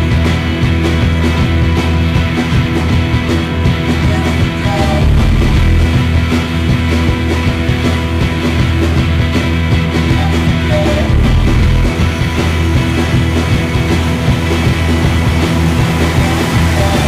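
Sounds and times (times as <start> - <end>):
loud rock music: 0.0 - 17.0.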